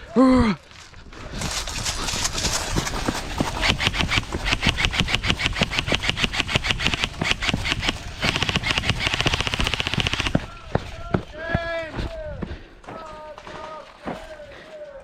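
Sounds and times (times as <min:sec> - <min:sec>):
paintball marker firing rapidly: 0:01.6 - 0:11.8.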